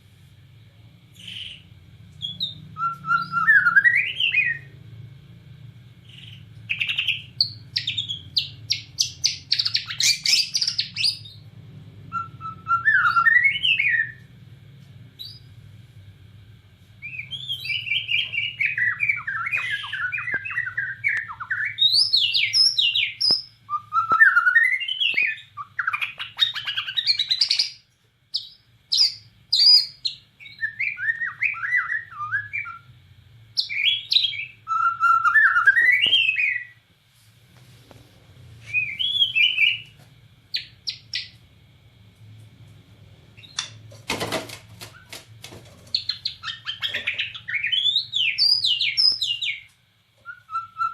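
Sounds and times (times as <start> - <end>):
faint low hum: 0.0 - 50.9
bird singing whistled notes: 2.2 - 4.7, 6.0 - 11.4, 12.1 - 14.2, 17.0 - 32.9, 33.6 - 36.8, 38.7 - 41.4, 45.9 - 50.9.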